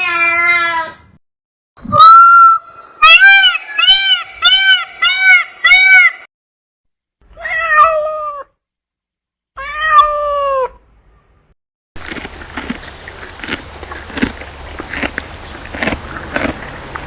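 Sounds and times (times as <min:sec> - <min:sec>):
cat meowing: 0:07.3 - 0:08.6, 0:09.6 - 0:10.8.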